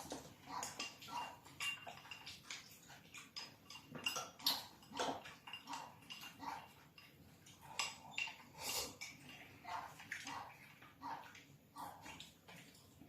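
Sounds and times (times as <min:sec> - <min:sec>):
tableware clinking: 0:00.2 - 0:02.6, 0:03.3 - 0:09.5.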